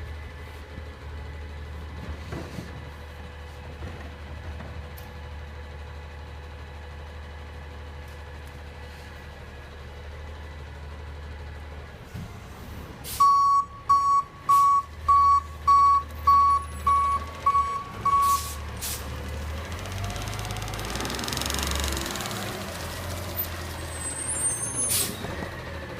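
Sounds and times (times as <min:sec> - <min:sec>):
garbage truck idling: 0:00.0 - 0:20.9
reversing alarm beeping: 0:13.2 - 0:18.6.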